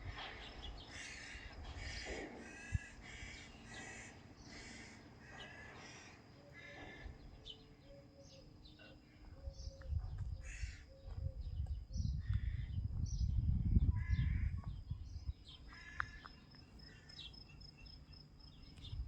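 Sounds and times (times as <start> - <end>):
lower repeated bird call: 0.1 - 12.8
crows cawing: 0.2 - 7.6, 10.4 - 11.1, 12.2 - 12.7, 14.0 - 14.6, 15.7 - 17.3.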